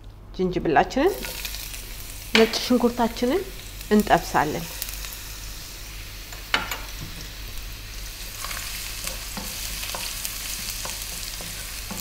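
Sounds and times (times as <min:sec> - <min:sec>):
garlic sizzling in hot oil: 0:01.0 - 0:12.0
wooden spoon tapping a pan: 0:06.4 - 0:07.3, 0:10.8 - 0:12.0.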